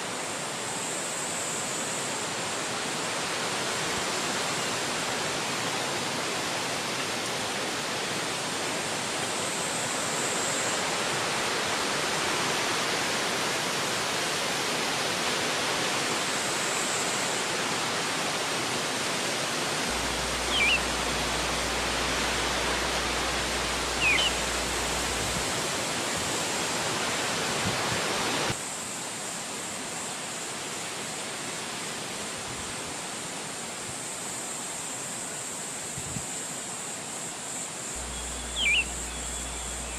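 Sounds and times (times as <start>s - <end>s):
wind rushing through trees: 0.0s - 39.9s
bird chirping: 19.9s - 25.2s, 38.0s - 39.9s.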